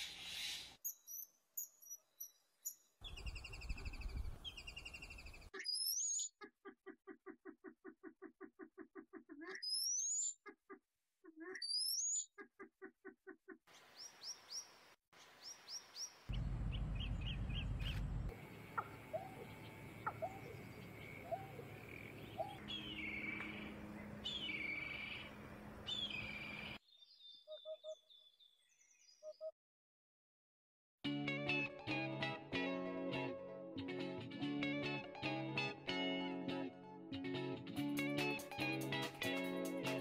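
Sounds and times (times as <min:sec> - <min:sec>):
birds chirping and calling: 0:11.3 - 0:12.5, 0:15.4 - 0:28.1.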